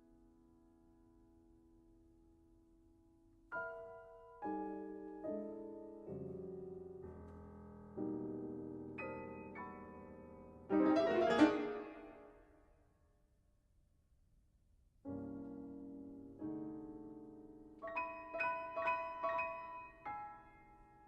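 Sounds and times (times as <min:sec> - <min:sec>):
solo piano chords: 0:03.5 - 0:12.5, 0:15.0 - 0:21.0.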